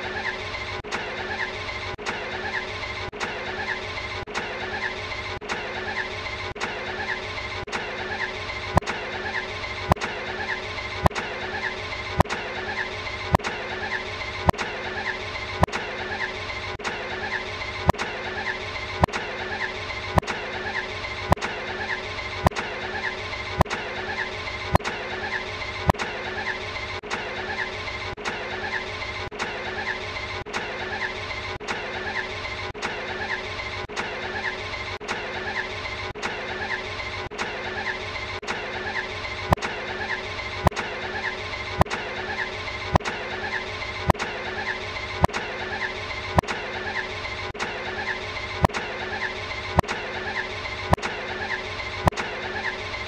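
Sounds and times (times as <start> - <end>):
sharp loop clicks: 14.4 - 14.9, 40.6 - 41.0, 41.8 - 42.2, 46.4 - 46.7, 48.6 - 49.1, 49.8 - 50.2, 50.9 - 51.3.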